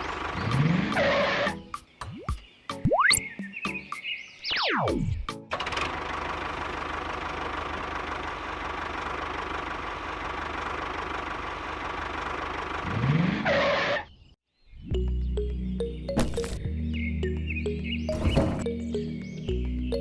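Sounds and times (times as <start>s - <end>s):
small engine running: 5.5s - 13.2s.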